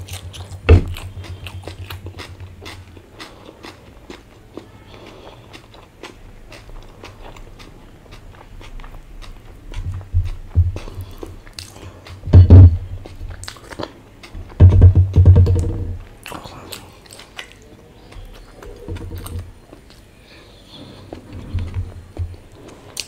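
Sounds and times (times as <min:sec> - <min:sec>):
chewing: 0:00.0 - 0:14.6, 0:16.2 - 0:23.0
low-pitched thuds: 0:09.8 - 0:11.2, 0:12.2 - 0:13.4, 0:14.4 - 0:16.0, 0:21.3 - 0:22.5.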